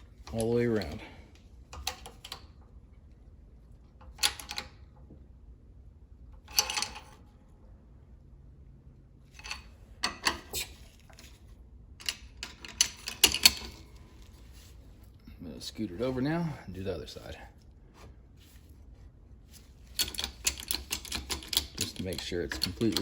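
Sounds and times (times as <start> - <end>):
metal parts and tools clattering: 6.4 - 7.2, 9.3 - 14.7, 19.5 - 23.0.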